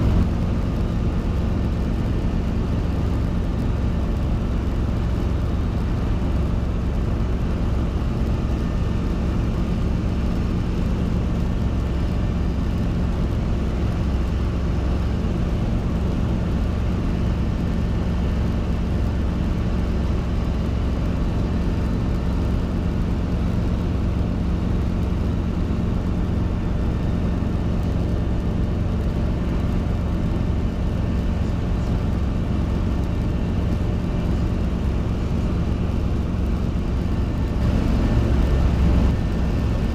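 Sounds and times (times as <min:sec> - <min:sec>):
helicopter engine and rotors droning: 0:00.0 - 0:39.9.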